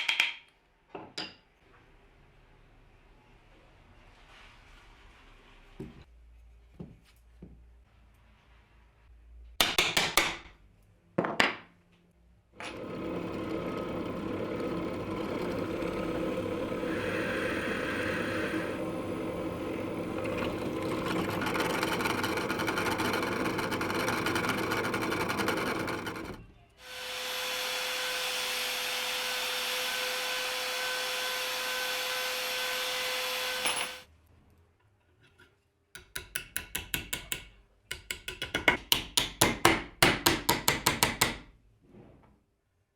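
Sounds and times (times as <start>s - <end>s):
power tool steady whine: 12.6s - 34.0s
power tool working wood: 12.6s - 34.0s.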